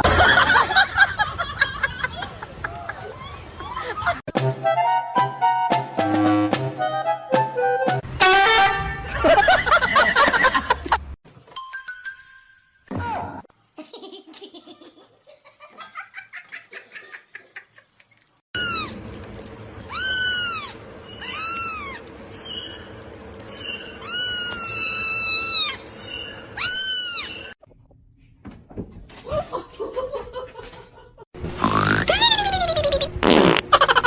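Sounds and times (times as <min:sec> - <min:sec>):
cat meowing loudly: 0:19.9 - 0:22.0, 0:24.0 - 0:25.8, 0:26.6 - 0:27.4.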